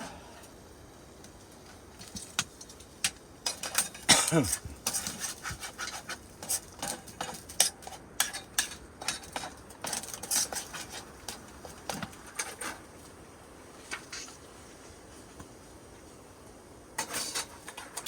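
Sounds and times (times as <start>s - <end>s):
utensil scraping against a pan: 3.5s - 12.8s, 17.0s - 18.0s.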